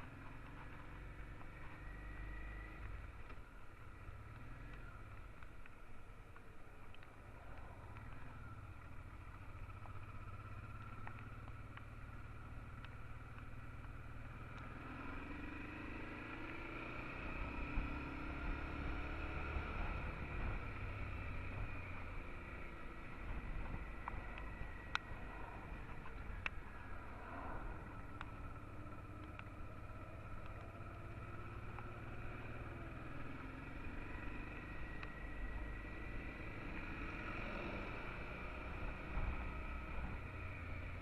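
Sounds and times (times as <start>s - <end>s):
motorcycle engine running: 0.0s - 5.8s, 7.5s - 41.0s.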